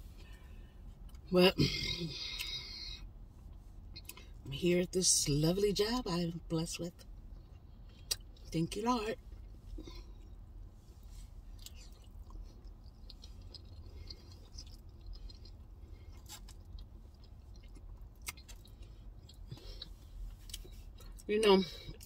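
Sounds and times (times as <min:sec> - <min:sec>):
person chewing: 0:11.2 - 0:22.0.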